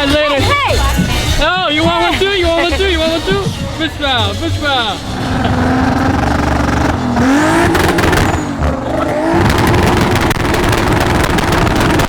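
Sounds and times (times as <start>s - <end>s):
car engine revving: 3.8s - 12.0s.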